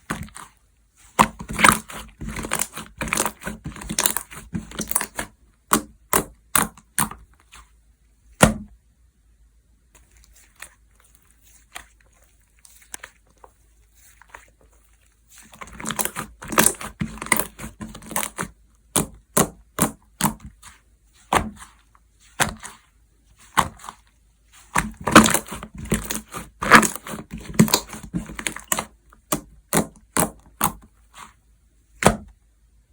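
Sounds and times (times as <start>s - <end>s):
slime squished by hand: 0.0s - 7.8s, 10.0s - 31.4s.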